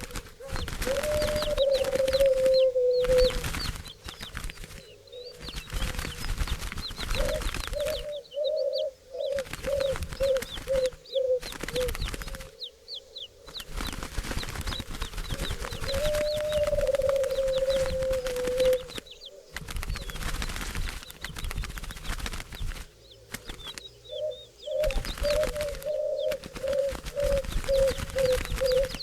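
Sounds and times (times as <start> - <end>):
low-pitched bird calling: 0.0 - 3.6, 7.2 - 13.5, 15.4 - 20.1, 24.0 - 29.0
rustling flapping noise: 0.0 - 8.4, 9.2 - 29.0
small birds chirping: 0.0 - 29.0.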